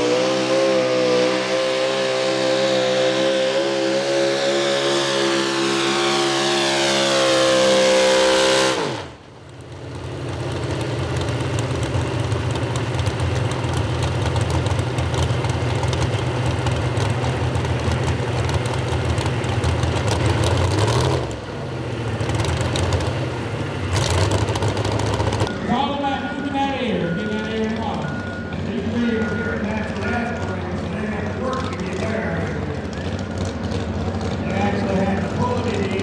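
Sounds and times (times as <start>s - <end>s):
truck engine revving: 0.0s - 25.5s
engine idling: 8.8s - 25.5s.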